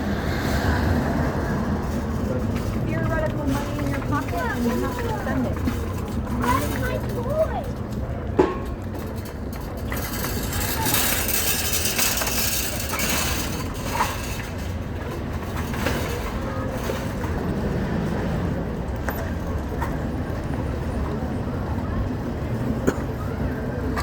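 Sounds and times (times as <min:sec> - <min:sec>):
hiss of vehicle passing: 0:00.0 - 0:01.6
vehicle rumble: 0:00.0 - 0:24.0.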